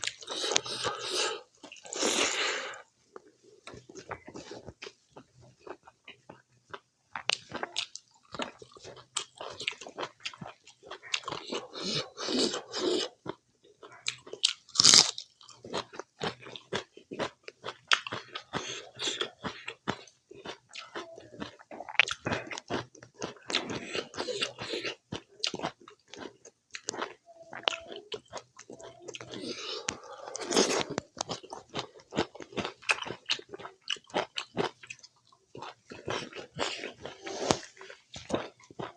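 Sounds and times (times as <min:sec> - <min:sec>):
chewing and crunching: 0:00.0 - 0:38.9
wet mouth clicks: 0:28.6 - 0:31.4.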